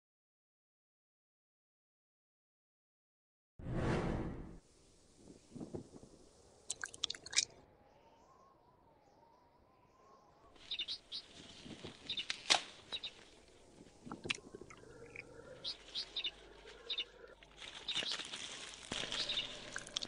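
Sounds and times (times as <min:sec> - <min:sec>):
small bird chirping: 0:06.7 - 0:20.0.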